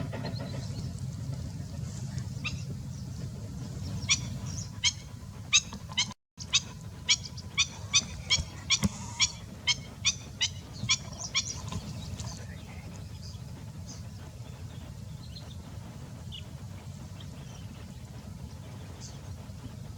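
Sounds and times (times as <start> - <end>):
low rumble: 0.0 - 19.9
young bird cheeping: 3.8 - 12.4.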